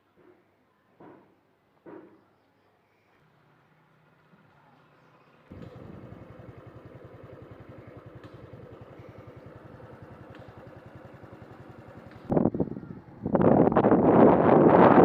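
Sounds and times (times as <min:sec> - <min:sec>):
engine idling: 0:03.4 - 0:14.0
wind on microphone: 0:12.3 - 0:15.0.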